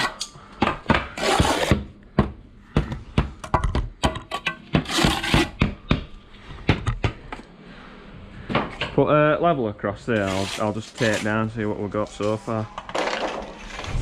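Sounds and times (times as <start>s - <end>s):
trowel scraping mortar: 1.1s - 1.8s, 4.7s - 5.6s, 10.1s - 11.4s.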